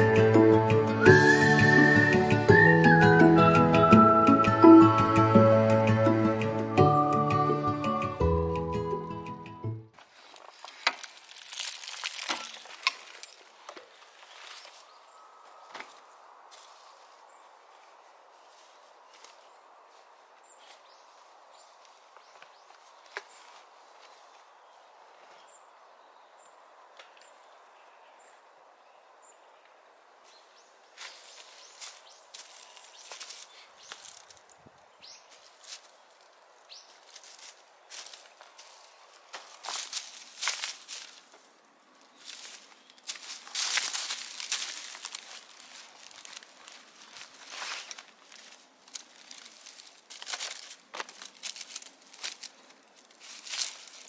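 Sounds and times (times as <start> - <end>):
crunching and rustling: 10.0 - 15.0, 31.0 - 34.6, 35.3 - 54.0.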